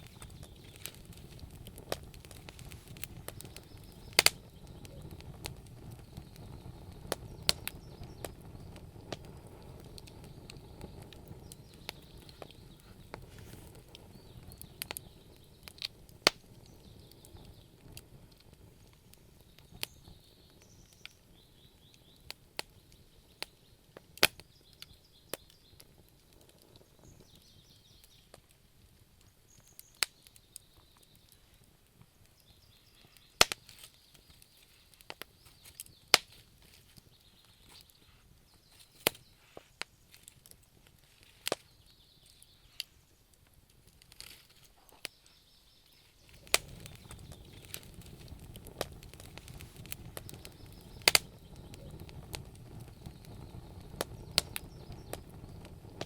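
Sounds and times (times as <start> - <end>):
flame rushing: 0.0 - 21.0, 45.9 - 56.0
wood fire crackling and popping: 0.0 - 56.0.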